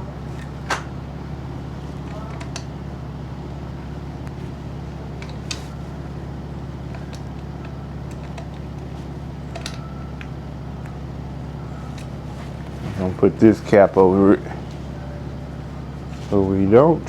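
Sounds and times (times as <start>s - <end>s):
low mechanical hum: 0.0s - 17.0s
tools clicking and tapping: 2.0s - 2.7s, 6.9s - 10.3s.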